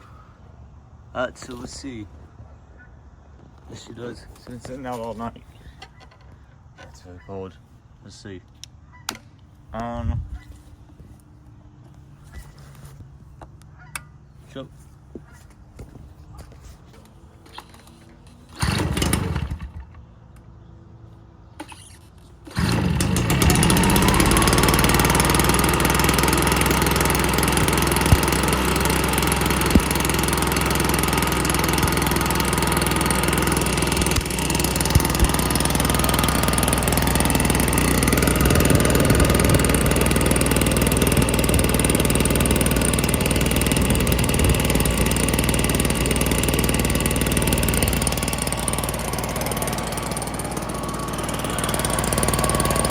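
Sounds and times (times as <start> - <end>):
two-stroke blower engine running: 17.5 - 20.1, 22.4 - 52.9.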